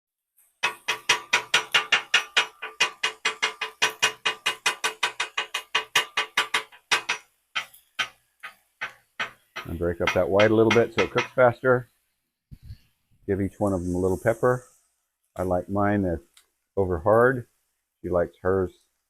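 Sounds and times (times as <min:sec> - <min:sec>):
metal spatula clanking on griddle: 0:00.6 - 0:11.5.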